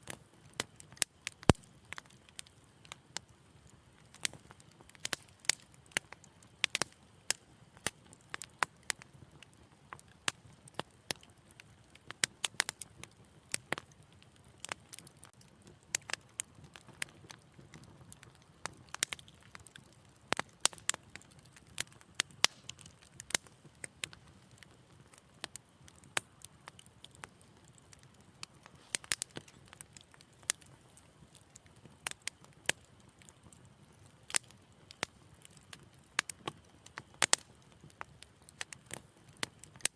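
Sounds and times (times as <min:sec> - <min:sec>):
wood fire crackling and popping: 0:00.0 - 0:39.9
low rush of flames: 0:15.3 - 0:32.8.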